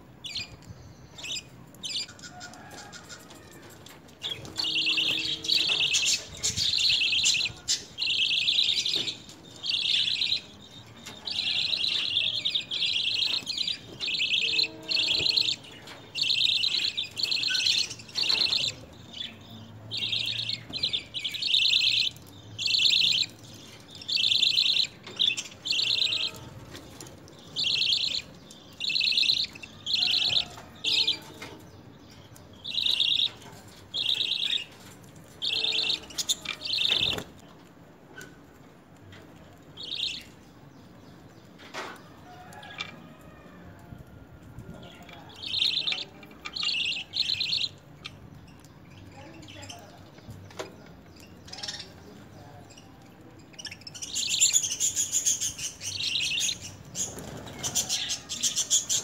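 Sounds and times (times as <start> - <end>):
small birds chirping: 0.0 - 43.2, 44.0 - 59.0.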